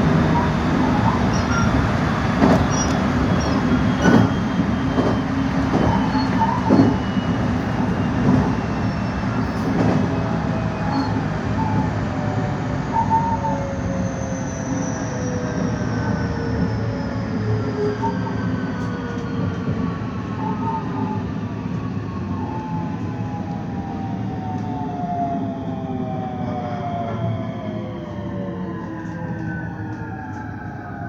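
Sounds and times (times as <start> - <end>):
faint wheel squeal: 0.3 - 1.8, 2.6 - 5.3.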